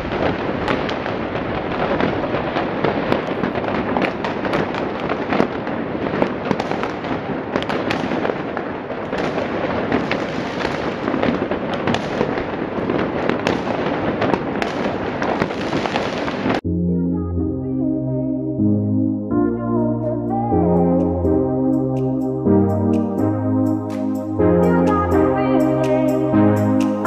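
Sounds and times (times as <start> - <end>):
fireworks bangs: 0.0 - 16.6
fireworks crackling: 0.0 - 16.6, 21.8 - 27.0.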